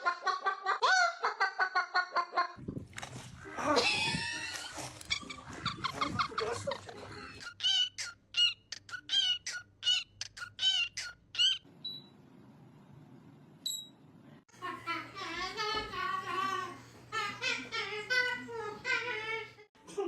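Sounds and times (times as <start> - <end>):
parrot voice-like chatter: 5.1 - 11.6
parrot squawking calls: 7.4 - 11.6.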